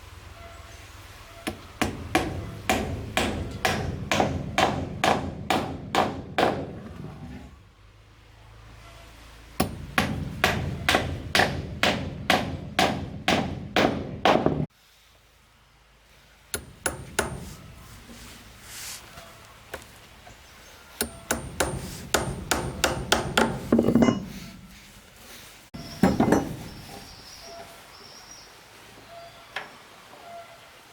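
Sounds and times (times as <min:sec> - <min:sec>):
hammer blows: 0:01.4 - 0:07.4, 0:09.6 - 0:14.7.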